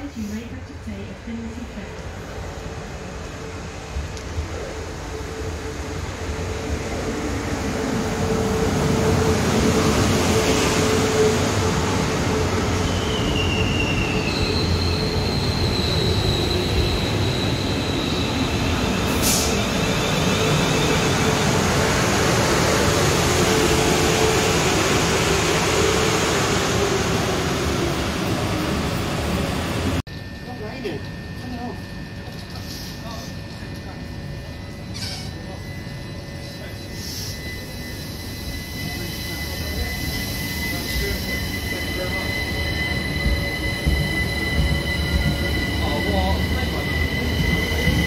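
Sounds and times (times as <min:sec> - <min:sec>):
brake and wheel squeals: 0:12.7 - 0:21.4, 0:34.8 - 0:48.0
train wheels rumbling: 0:37.2 - 0:48.0.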